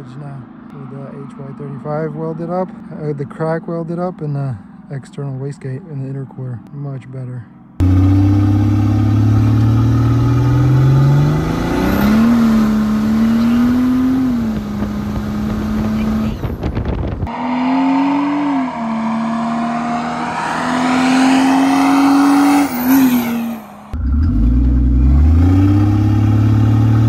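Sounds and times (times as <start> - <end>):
diesel engine accelerating hard: 7.8 - 27.0.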